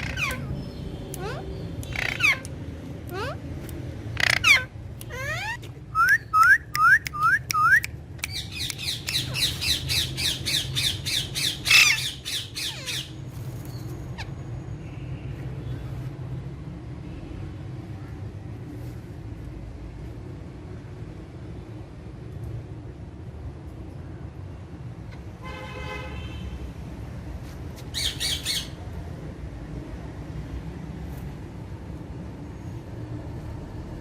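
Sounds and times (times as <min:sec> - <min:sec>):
parakeets squawking: 0:00.0 - 0:02.5, 0:04.1 - 0:06.1, 0:08.3 - 0:13.2, 0:27.9 - 0:28.8.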